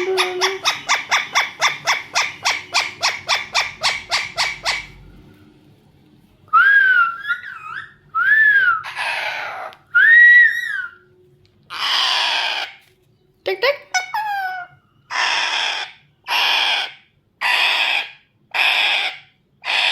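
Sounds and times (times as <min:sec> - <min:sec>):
parrot squawks: 0:00.0 - 0:05.1, 0:06.7 - 0:11.0, 0:11.7 - 0:12.8, 0:13.8 - 0:19.9
parrot whistles: 0:06.5 - 0:11.1.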